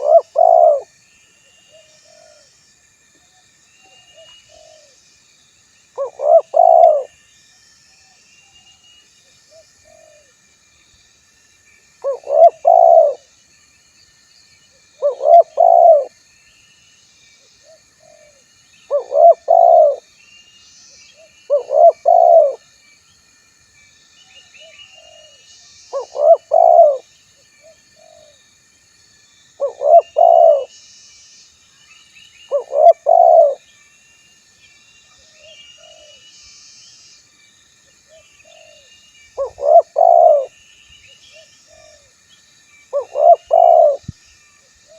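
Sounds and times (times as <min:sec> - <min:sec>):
dove cooing: 0:00.0 - 0:00.9, 0:06.0 - 0:07.1, 0:12.0 - 0:13.2, 0:15.0 - 0:16.1, 0:18.0 - 0:20.0, 0:21.5 - 0:22.6, 0:25.9 - 0:27.0, 0:29.6 - 0:30.7, 0:32.5 - 0:33.6, 0:38.5 - 0:40.5, 0:42.9 - 0:44.1.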